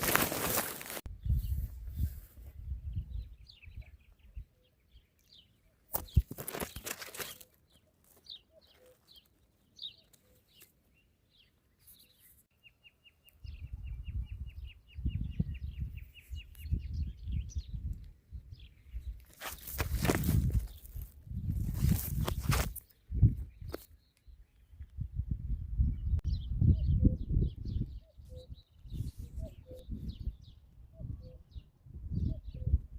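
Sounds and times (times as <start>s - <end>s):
small birds chirping: 0.0s - 32.9s
wind rumble on microphone: 1.1s - 4.6s, 13.4s - 19.2s, 19.8s - 32.9s.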